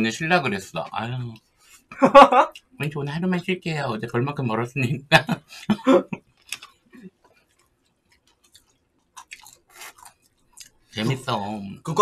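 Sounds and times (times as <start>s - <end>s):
people chewing: 6.4s - 6.7s, 8.2s - 11.4s.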